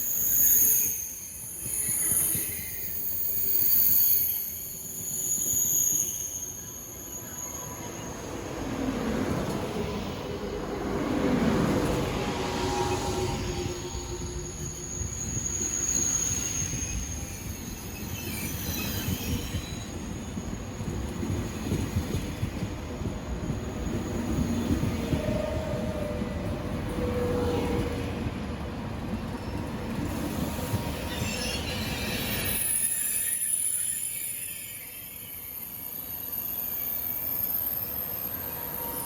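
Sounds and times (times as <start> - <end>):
wheel or brake squeals: 0.0 - 8.9, 12.4 - 21.8, 30.4 - 39.0
train rumbling on rails: 0.0 - 39.0.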